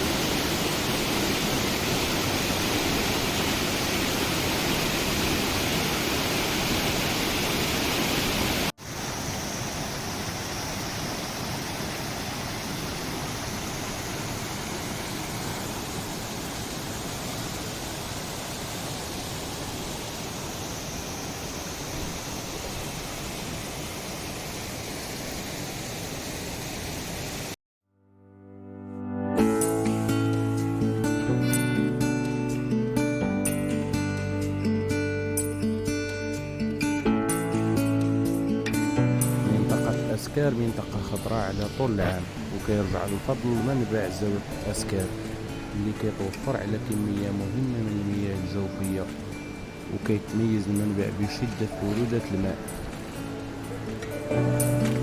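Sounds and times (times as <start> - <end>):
waterfall rushing: 0.0 - 27.6, 38.7 - 55.0.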